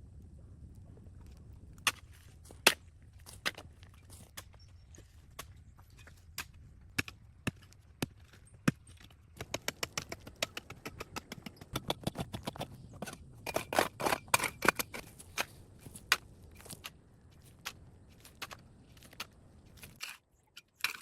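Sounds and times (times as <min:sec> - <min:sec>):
sharp clicks and cracks: 0:09.0 - 0:21.0.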